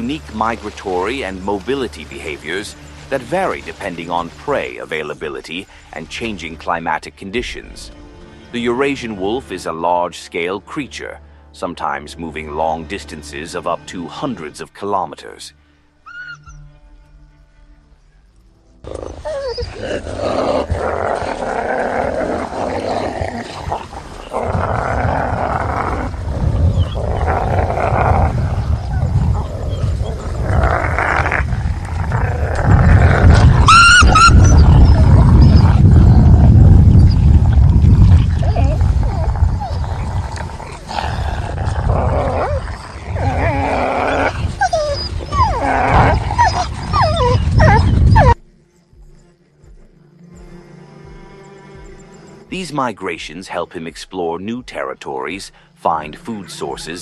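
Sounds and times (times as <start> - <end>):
wolves growling: 18.8 - 48.5.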